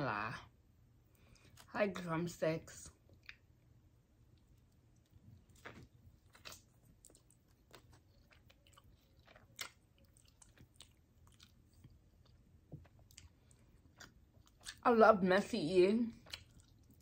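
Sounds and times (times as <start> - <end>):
faint chewing: 1.0 - 1.7, 2.9 - 14.8, 16.1 - 17.0.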